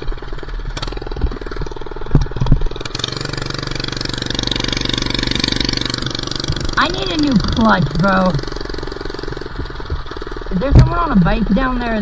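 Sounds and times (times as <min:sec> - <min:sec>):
small engine running: 0:00.0 - 0:12.0
short knocks: 0:09.3 - 0:11.7.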